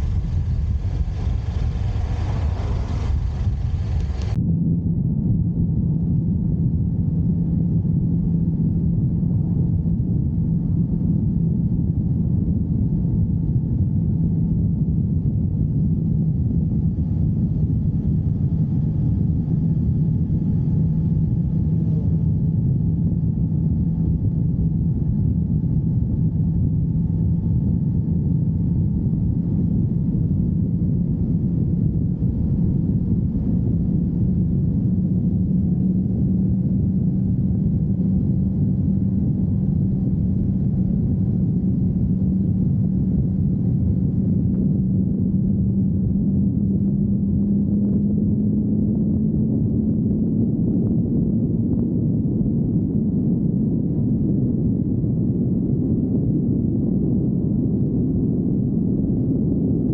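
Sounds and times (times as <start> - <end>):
motorcycle engine running: 0.0 - 4.4.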